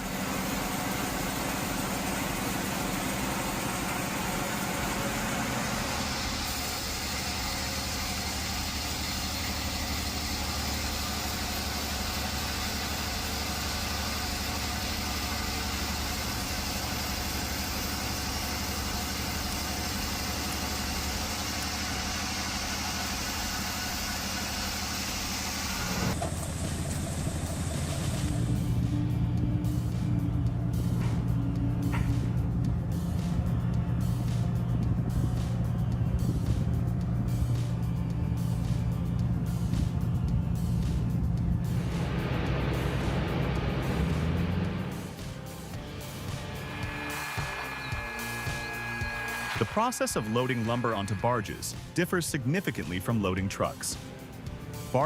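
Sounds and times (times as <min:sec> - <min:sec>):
engine running steadily: 0:00.0 - 0:55.0
high hiss: 0:44.9 - 0:52.0.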